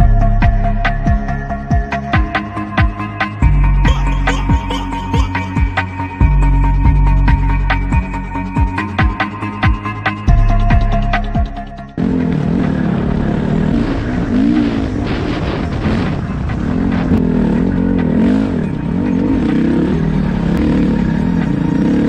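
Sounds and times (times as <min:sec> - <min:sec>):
dirt bike engine revving: 0:11.9 - 0:22.0.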